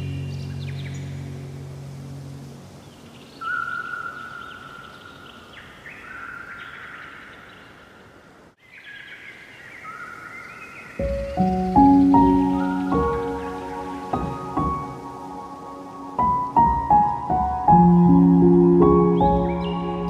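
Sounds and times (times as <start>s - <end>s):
songbirds singing: 0.0s - 20.0s
musical notes: 11.0s - 20.0s.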